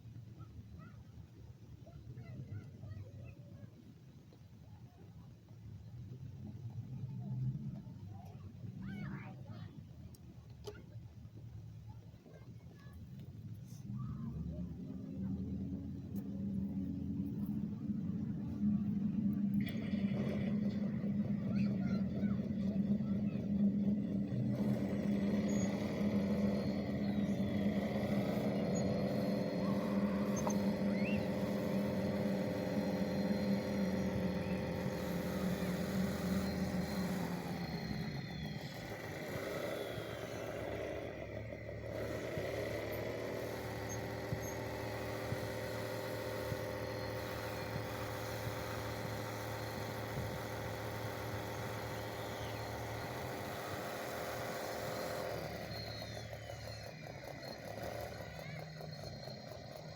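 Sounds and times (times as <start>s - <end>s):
motor running: 11.9s - 59.9s
faint high whine: 12.2s - 59.9s.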